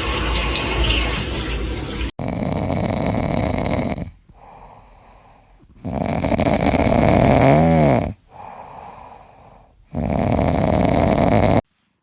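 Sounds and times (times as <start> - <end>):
pet snoring loudly: 2.2 - 4.8, 5.7 - 9.1, 9.9 - 11.6.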